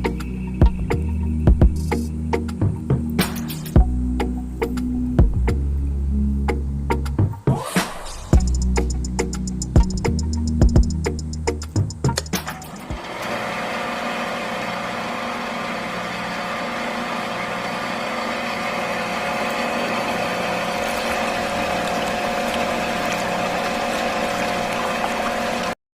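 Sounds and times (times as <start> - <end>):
small electric water pump whining: 8.3 - 25.8.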